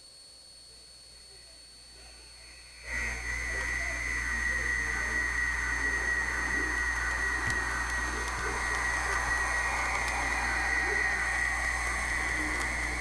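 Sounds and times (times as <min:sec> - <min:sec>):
model train motor whine: 0:02.0 - 0:13.0
click: 0:07.4 - 0:10.3.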